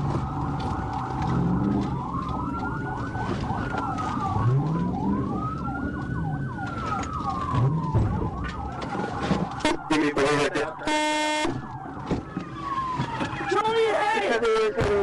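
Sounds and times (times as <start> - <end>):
car engine rumble: 0.0 - 9.6
yelping siren: 0.0 - 14.6
police siren wailing: 0.0 - 15.0
road noise: 0.0 - 15.0.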